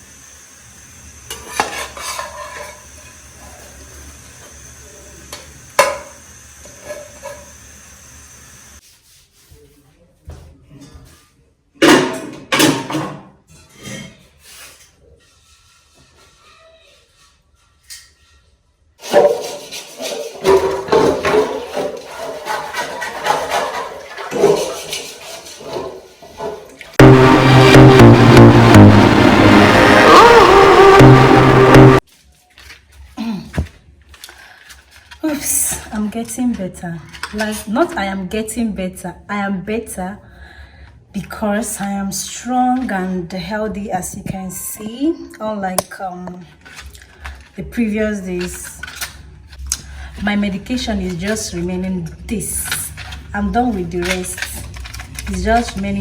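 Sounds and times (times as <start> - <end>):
utensils clinking against dishware: 19.0 - 26.9.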